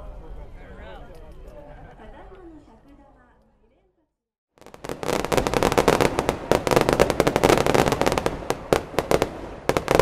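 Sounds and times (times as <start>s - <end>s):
fireworks crackling bangs: 4.6s - 10.0s.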